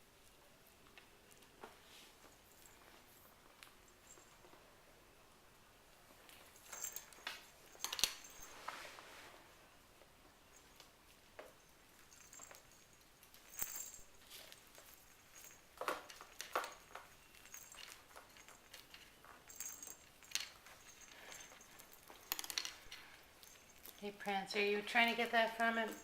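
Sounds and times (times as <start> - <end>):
kittens playing with toys: 0.1 - 4.8, 5.9 - 26.0
soft taps and rustles: 0.2 - 4.7.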